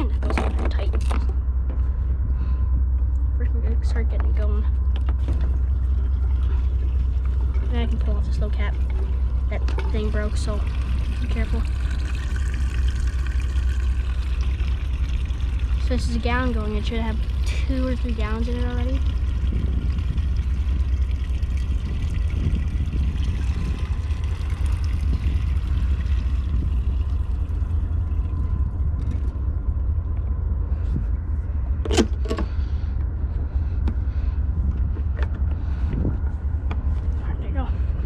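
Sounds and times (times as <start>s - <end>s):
low rumble: 0.0s - 38.0s.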